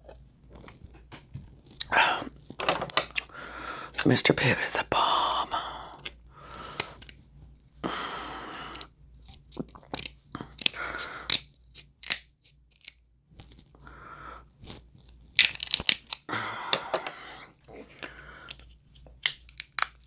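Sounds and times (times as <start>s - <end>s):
close-up chewing: 0.0s - 2.6s, 8.7s - 13.8s
crab shells cracking: 8.8s - 13.7s, 15.0s - 16.9s, 18.4s - 20.0s.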